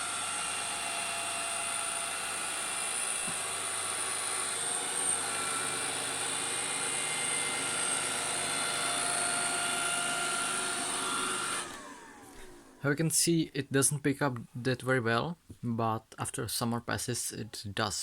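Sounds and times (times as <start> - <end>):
robot vacuum whine: 0.0 - 12.8.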